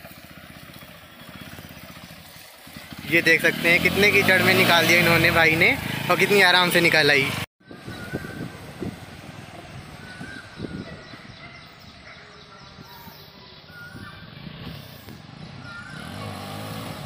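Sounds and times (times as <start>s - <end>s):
bird calling: 9.4s - 16.4s.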